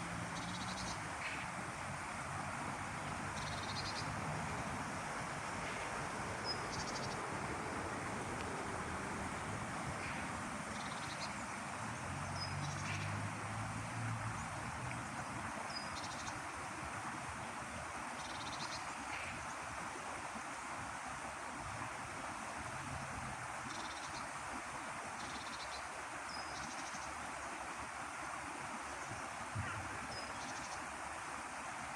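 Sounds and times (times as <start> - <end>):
steady rushing noise: 1.6 - 10.7.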